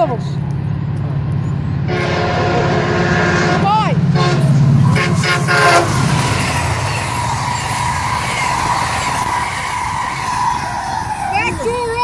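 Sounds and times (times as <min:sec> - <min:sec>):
train wheels rushing on rails: 0:00.4 - 0:12.0
train horn: 0:01.9 - 0:07.8.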